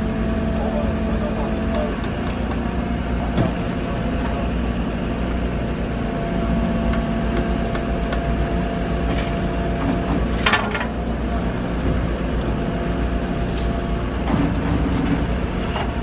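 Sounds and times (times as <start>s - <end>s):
heavy equipment engine running: 0.0s - 16.0s.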